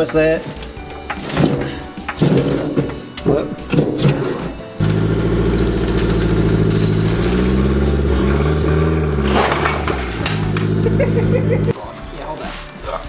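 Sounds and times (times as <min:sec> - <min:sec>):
car engine running: 0:04.8 - 0:11.7.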